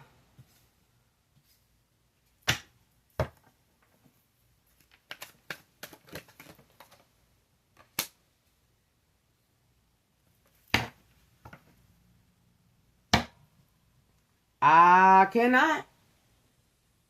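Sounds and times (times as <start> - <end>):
cards clicking and tapping: 4.7 - 7.1.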